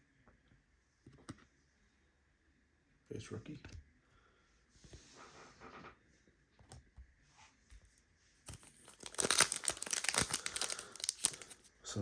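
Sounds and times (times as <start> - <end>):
foil wrapper crinkling and tearing: 8.5 - 11.7.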